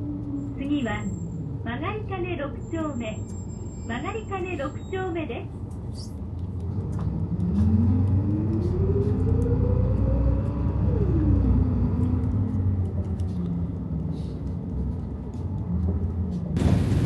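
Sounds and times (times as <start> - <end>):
car low rumble: 4.0 - 17.0
car whine rising: 6.5 - 16.5.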